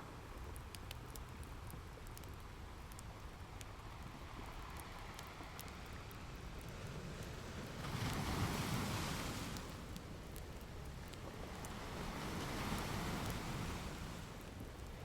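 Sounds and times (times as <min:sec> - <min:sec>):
fire crackling and popping: 0:00.2 - 0:15.0
ocean surf rumble: 0:03.9 - 0:15.0.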